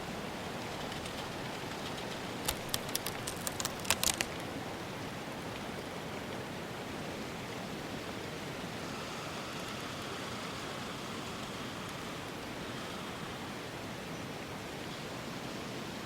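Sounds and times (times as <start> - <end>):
sharp clicks: 1.9 - 4.4.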